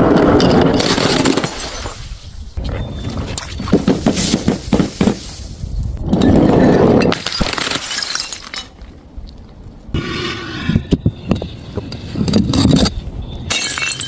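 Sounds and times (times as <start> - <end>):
glass bottles smashing: 0.4 - 2.1, 7.1 - 8.8, 13.5 - 14.0
glass shards clinking: 7.2 - 8.8, 13.5 - 14.0
glass ringing: 13.4 - 14.0.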